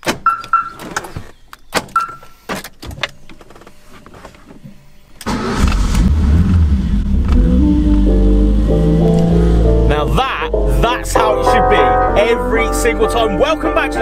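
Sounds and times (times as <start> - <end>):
car engine starting and idling: 5.2 - 11.3.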